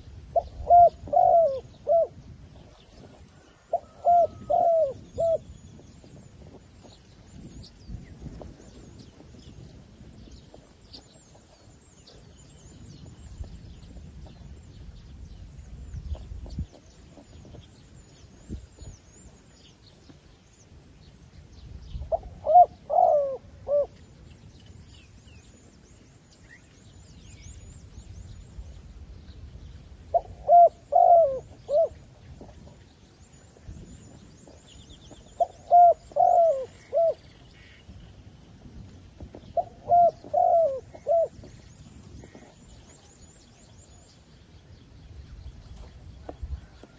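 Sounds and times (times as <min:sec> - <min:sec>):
dove cooing: 0:00.0 - 0:06.2, 0:22.0 - 0:24.0, 0:30.1 - 0:32.8, 0:34.5 - 0:37.8, 0:39.6 - 0:41.6.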